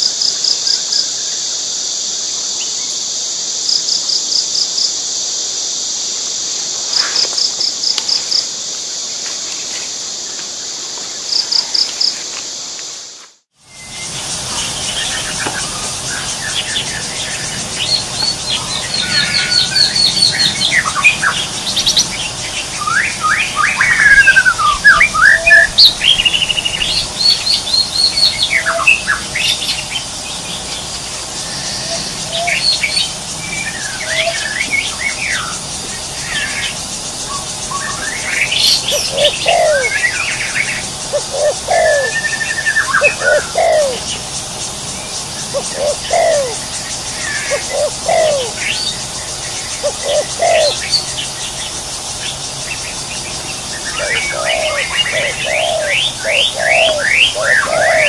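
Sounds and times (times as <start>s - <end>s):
birds chirping and trilling: 13.7s - 58.0s.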